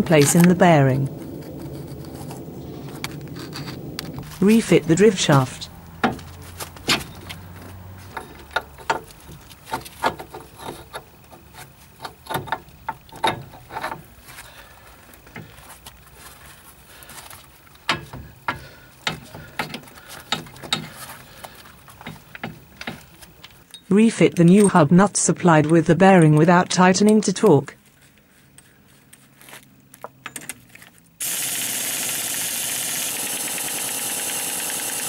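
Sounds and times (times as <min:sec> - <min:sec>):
metallic clicks and knocks: 0:08.1 - 0:14.1, 0:17.8 - 0:20.9.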